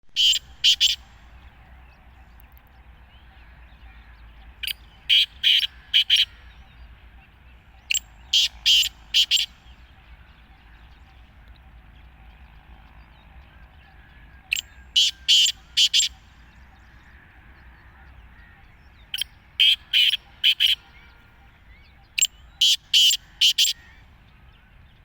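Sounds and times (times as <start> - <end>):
bird harsh scratchy calls: 0.1 - 1.0, 5.1 - 6.4, 8.3 - 9.6, 15.0 - 16.2, 19.6 - 20.9, 22.6 - 23.9.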